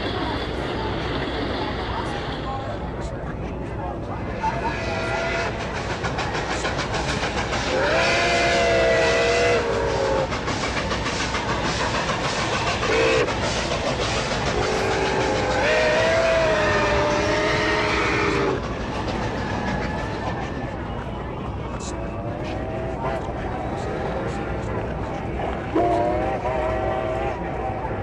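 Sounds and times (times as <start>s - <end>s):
train rumble: 0.0s - 28.0s
wheels clicking on rails: 4.0s - 28.0s
train horn chord: 25.7s - 27.4s.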